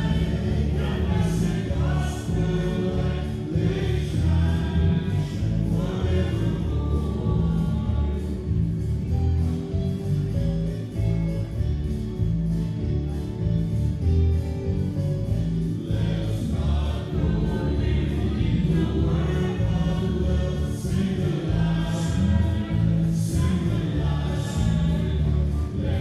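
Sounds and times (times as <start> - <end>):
gospel choir singing: 0.0 - 9.4, 15.4 - 26.0
bass-heavy accompaniment: 0.0 - 26.0.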